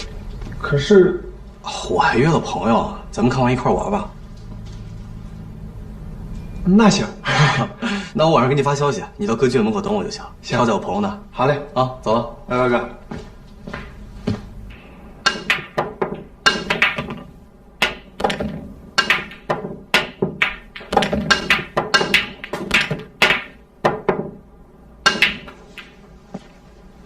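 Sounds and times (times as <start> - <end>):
billiard balls clacking: 14.7 - 26.6
cue striking ball: 15.2 - 24.4, 25.0 - 26.0.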